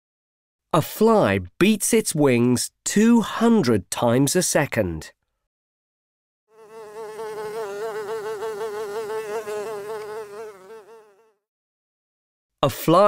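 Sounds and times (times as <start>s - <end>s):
housefly buzzing: 6.5s - 11.5s.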